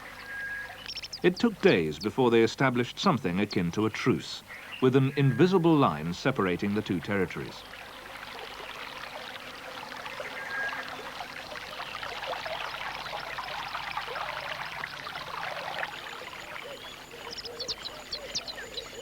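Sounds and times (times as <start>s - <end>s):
running river water: 0.0s - 19.0s
high bird chirps: 0.1s - 2.2s, 15.9s - 19.0s.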